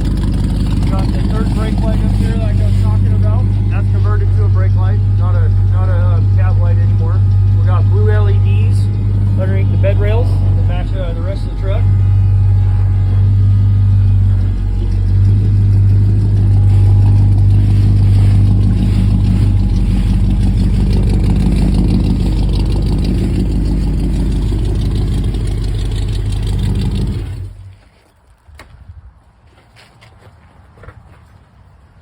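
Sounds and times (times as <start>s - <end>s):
engine idling with deep exhaust: 0.0s - 27.8s.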